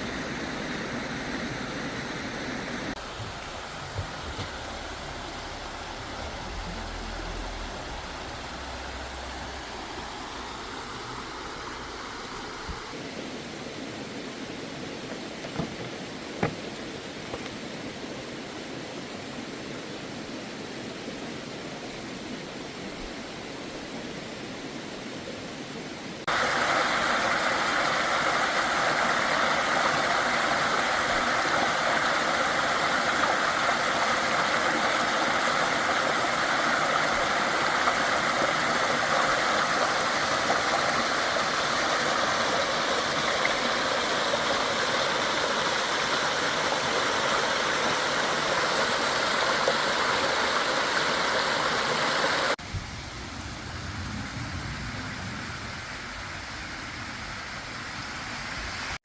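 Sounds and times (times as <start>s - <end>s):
running water: 0.0s - 24.6s, 25.3s - 52.6s.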